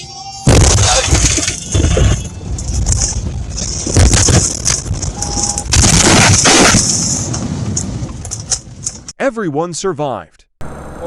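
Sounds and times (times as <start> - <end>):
vehicle collision crashing impacts: 0.4 - 9.1.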